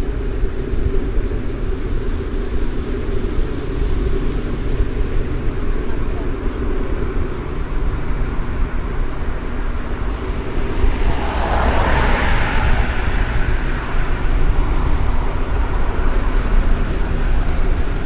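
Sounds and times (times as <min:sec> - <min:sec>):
street traffic rumble: 0:00.0 - 0:18.0
vehicle passing close: 0:09.7 - 0:16.1.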